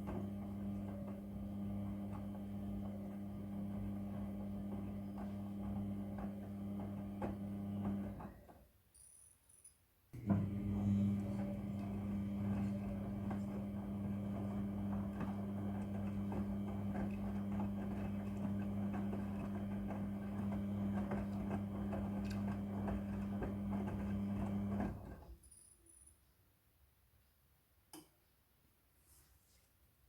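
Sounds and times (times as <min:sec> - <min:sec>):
washing machine humming: 0:00.0 - 0:08.5, 0:10.2 - 0:25.2.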